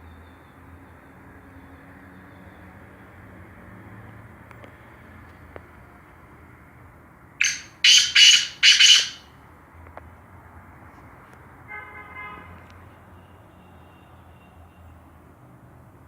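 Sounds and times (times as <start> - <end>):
bird harsh call: 7.4 - 9.2.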